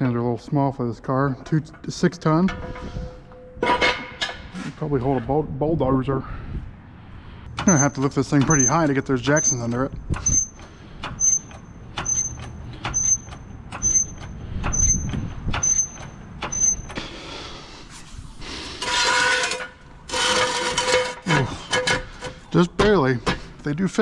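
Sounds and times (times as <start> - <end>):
metal jack stands scraping: 1.4 - 5.3, 7.5 - 17.1, 17.9 - 23.6
floor jack pumping with squeaks: 7.6 - 17.1, 18.8 - 23.5.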